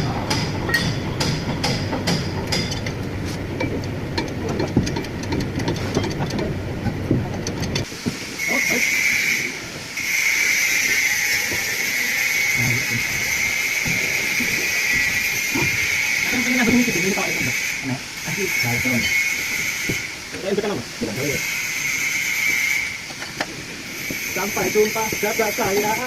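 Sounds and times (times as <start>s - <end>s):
clattering workshop noise: 0.0s - 26.0s
steady hiss: 7.5s - 26.0s.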